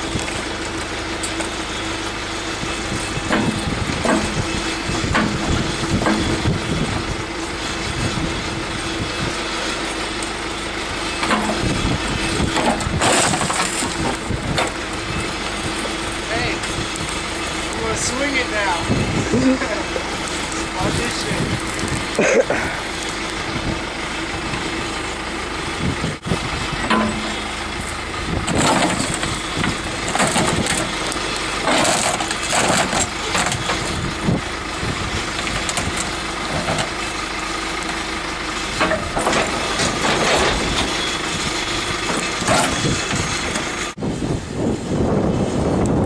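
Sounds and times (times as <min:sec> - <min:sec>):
diesel engine running: 0:00.0 - 0:46.0
sheet metal crunching and banging: 0:03.2 - 0:06.9, 0:38.8 - 0:43.7.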